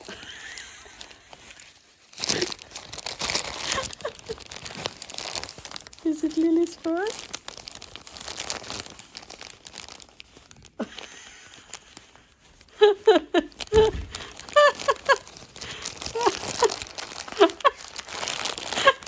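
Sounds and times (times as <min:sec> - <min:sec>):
packaging crinkling: 0:00.0 - 0:19.0.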